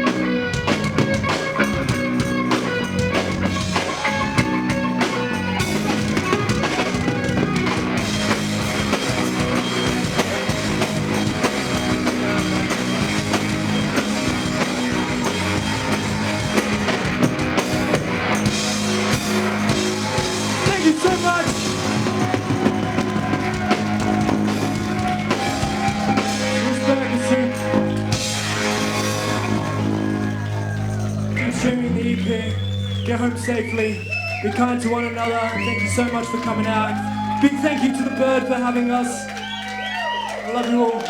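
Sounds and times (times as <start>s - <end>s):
drum kit: 0.0s - 31.7s
electric guitars: 0.0s - 33.0s, 33.6s - 41.0s.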